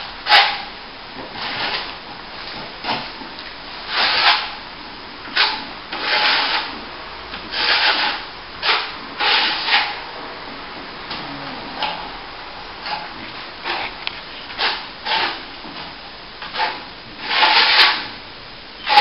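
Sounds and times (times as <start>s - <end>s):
plastering trowel scraping plaster: 1.3s - 1.9s, 3.9s - 4.6s, 5.3s - 6.8s, 7.4s - 10.0s, 12.8s - 18.2s.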